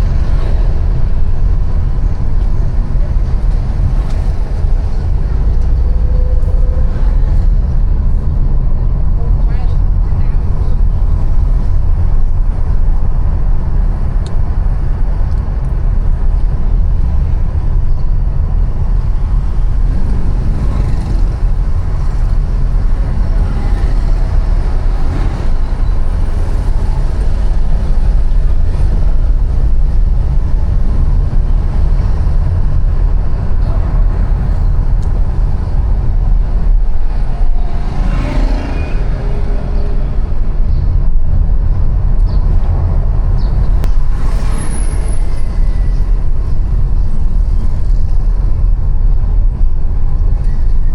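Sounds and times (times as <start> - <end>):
city road traffic: 0.0 - 50.9
deep steady rumble: 0.0 - 50.9
vehicle passing: 19.4 - 41.0.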